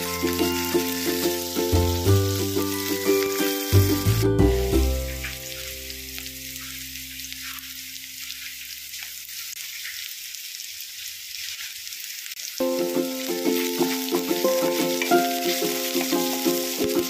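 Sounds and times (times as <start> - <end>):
background music: 0.0 - 6.2, 12.6 - 17.0
vegetables sizzling in hot oil: 0.0 - 17.0.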